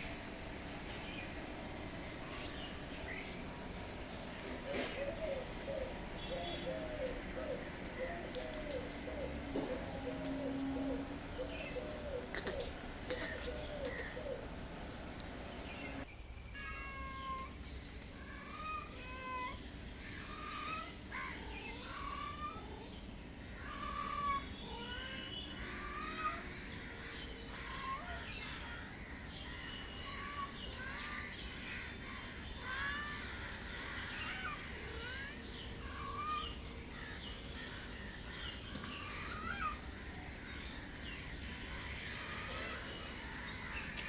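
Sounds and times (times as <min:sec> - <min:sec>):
cats meowing: 0:16.6 - 0:17.5, 0:27.2 - 0:28.9, 0:33.9 - 0:36.5.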